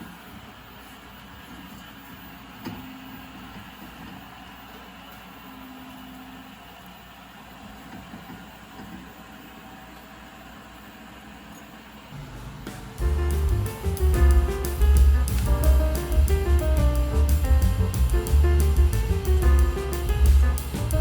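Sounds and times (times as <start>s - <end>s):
low rumbling background noise: 11.9s - 21.0s.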